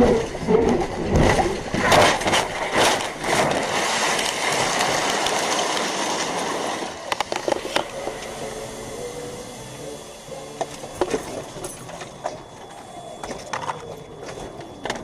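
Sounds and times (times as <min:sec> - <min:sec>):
car road noise: 0:03.1 - 0:15.0.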